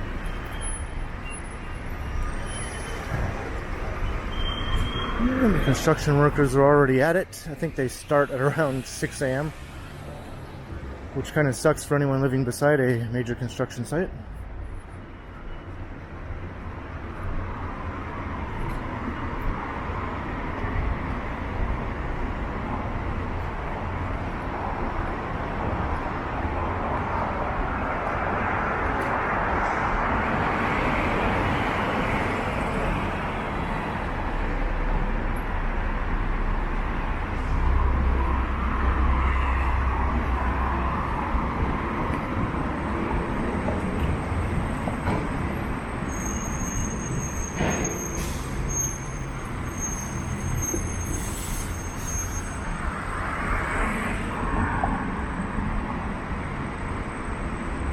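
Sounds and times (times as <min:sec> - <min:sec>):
cars driving past: 0:00.0 - 0:12.2, 0:16.4 - 0:57.9
heavy vehicle rumbling low: 0:03.0 - 0:08.0.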